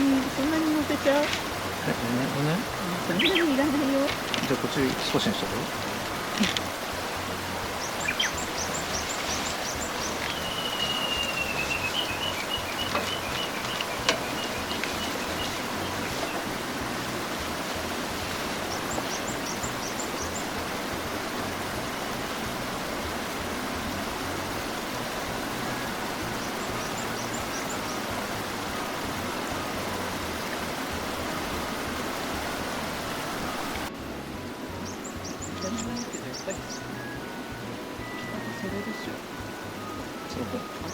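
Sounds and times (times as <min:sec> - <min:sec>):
small birds chirping: 0:00.0 - 0:20.9, 0:25.8 - 0:29.3, 0:34.8 - 0:37.2, 0:40.0 - 0:40.9
steady outdoor rush: 0:00.0 - 0:40.9.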